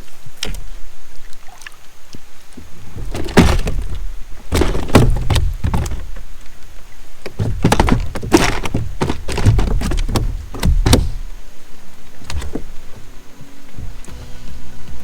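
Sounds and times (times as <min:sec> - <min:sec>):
knocks on plastic kayak: 0:03.0 - 0:06.2, 0:07.3 - 0:11.4
low rumbling: 0:08.9 - 0:15.0.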